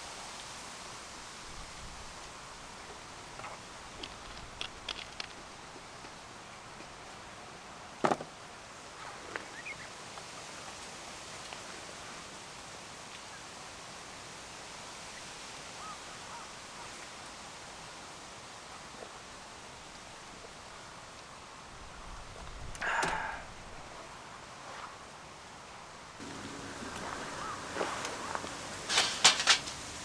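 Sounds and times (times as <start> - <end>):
insects chirping: 26.2 - 30.0
sharp crack: 26.2 - 30.0.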